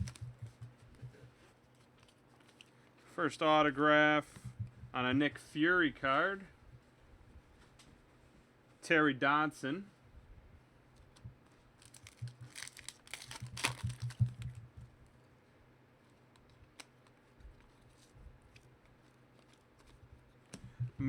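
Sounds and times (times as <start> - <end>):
card pack wrapper tearing: 11.8 - 14.4, 16.3 - 20.0
cards clicking: 16.3 - 20.6.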